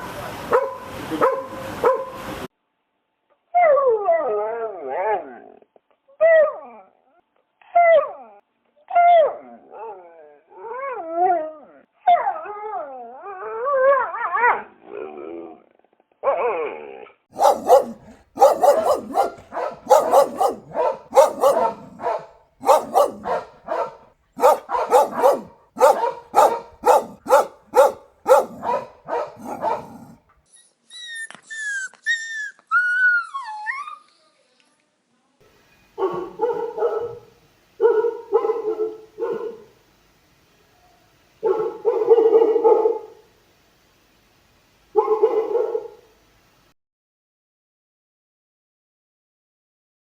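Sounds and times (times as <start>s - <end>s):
dog barking: 17.4s - 30.2s
dog howling and whining: 17.4s - 30.2s
dog whimpering: 17.4s - 30.2s.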